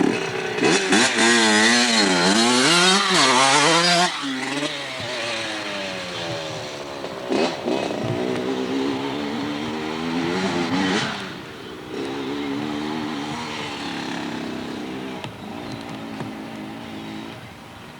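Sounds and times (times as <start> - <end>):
dirt bike engine revving: 0.0 - 17.5.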